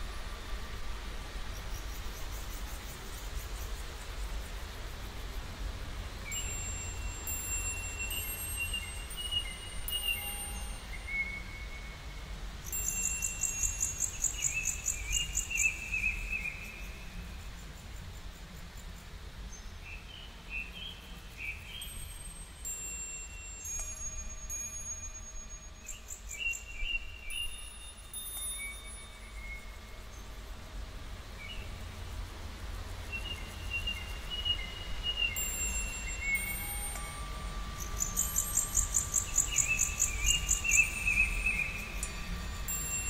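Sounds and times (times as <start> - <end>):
high bird trill: 6.3 - 11.8, 12.7 - 17.0, 33.1 - 43.0
birds whistling: 33.2 - 37.2, 37.8 - 43.0.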